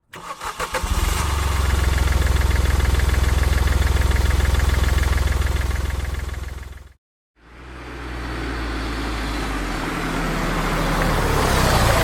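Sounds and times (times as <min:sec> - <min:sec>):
vehicle engine idling: 0:00.9 - 0:09.8.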